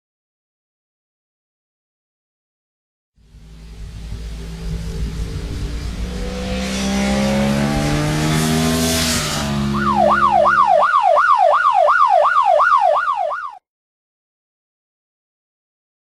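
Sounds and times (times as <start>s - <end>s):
tyre and wind hiss: 3.2s - 7.2s
vehicle engine accelerating: 3.2s - 11.0s
yelp siren: 9.0s - 13.6s.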